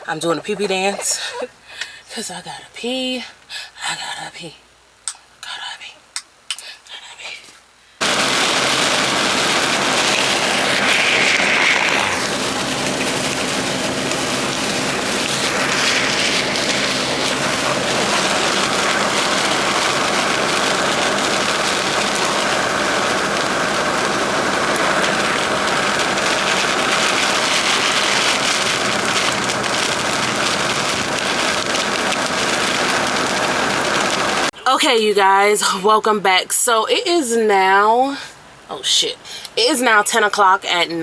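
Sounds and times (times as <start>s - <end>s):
heavy rain on truck: 8.0s - 34.6s.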